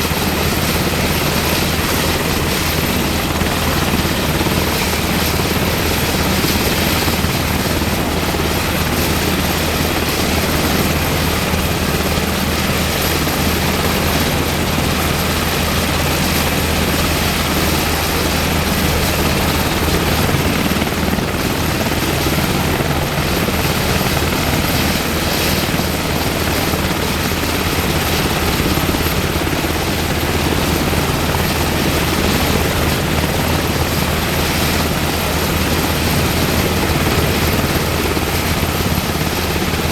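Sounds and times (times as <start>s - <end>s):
helicopter engines and rotor: 0.0s - 39.9s.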